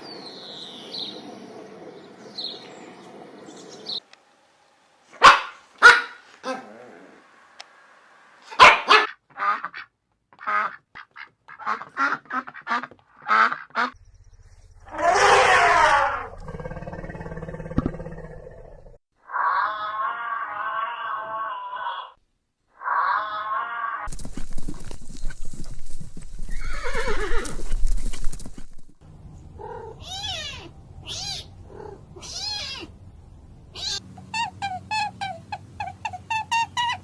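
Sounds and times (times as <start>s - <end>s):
dog barking: 5.2s - 6.6s, 8.5s - 9.2s
animal calls: 14.9s - 22.2s, 29.6s - 32.9s, 33.8s - 37.0s.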